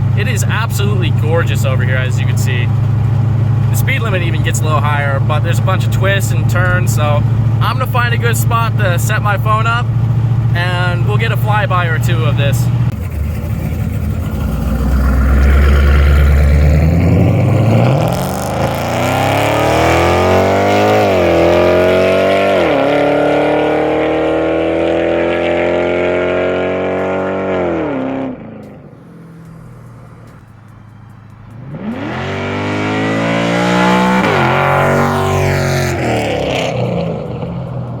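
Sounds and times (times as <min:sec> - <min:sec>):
car engine accelerating past: 0:12.8 - 0:38.0.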